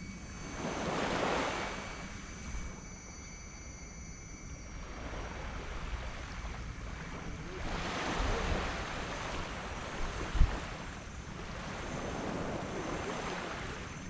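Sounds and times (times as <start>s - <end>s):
wave backwash: 4.8s - 14.0s
wave breaking on sand: 7.0s - 13.7s
wind thump on microphone: 9.4s - 10.7s.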